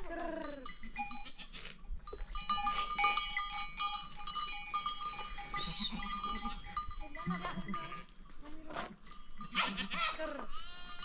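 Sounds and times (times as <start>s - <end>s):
goats and sheep bleating: 0.0s - 1.8s, 5.1s - 11.0s.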